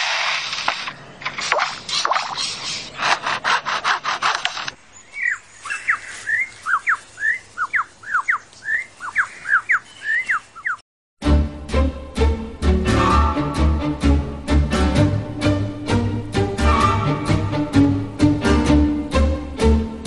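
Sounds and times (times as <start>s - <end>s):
rapid rasping strokes: 0.0s - 4.8s
bird singing whistled notes: 4.9s - 10.8s.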